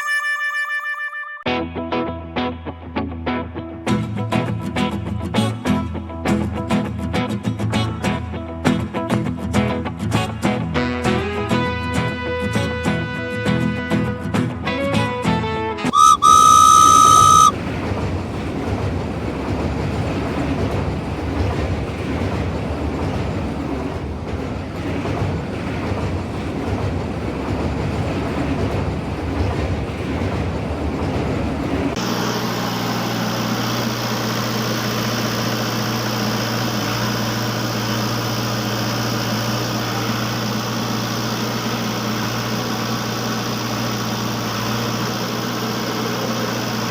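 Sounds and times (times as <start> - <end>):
steady engine hum: 15.9 - 46.9
rumbling clatter of train wagons: 17.5 - 46.9.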